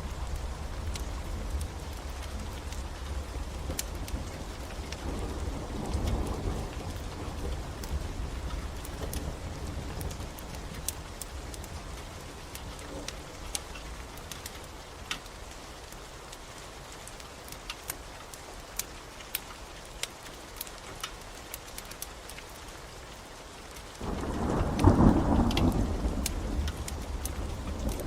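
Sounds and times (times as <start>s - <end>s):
thunder rumbling: 0.0s - 14.8s, 24.0s - 28.0s
rain hissing: 0.0s - 28.0s
wood fire crackling: 0.0s - 28.0s.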